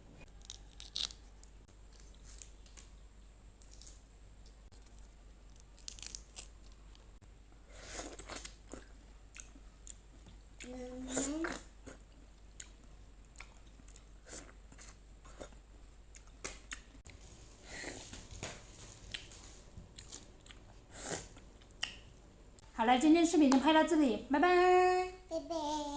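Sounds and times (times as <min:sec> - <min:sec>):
person chewing crunchy food: 0:00.3 - 0:03.0, 0:03.6 - 0:07.1, 0:07.7 - 0:10.1, 0:11.5 - 0:22.0.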